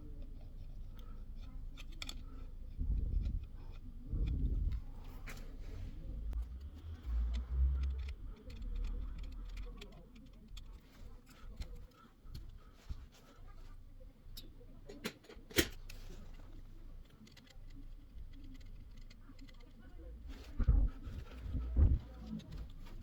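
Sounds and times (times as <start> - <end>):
low rumbling handling noise: 0.0 - 17.2, 19.2 - 23.0
small clicks and taps on electronics: 0.4 - 2.5.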